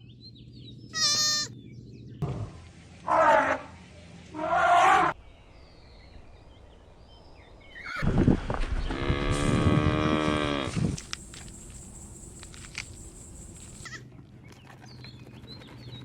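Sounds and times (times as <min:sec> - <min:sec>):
cow mooing: 0:08.9 - 0:11.0.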